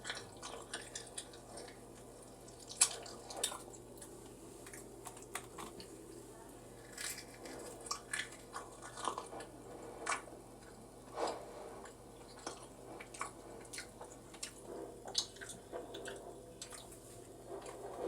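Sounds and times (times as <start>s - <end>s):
chewing and crunching: 0.0s - 18.0s.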